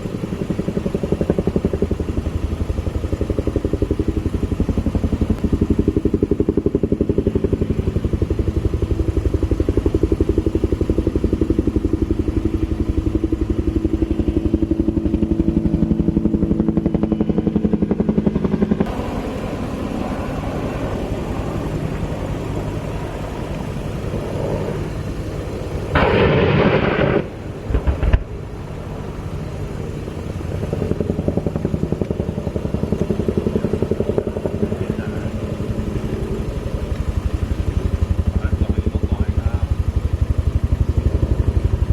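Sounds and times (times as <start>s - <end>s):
helicopter rotor chopping: 0.0s - 41.9s
sharp crack: 25.9s - 28.6s
loud noisy burst: 25.9s - 28.7s.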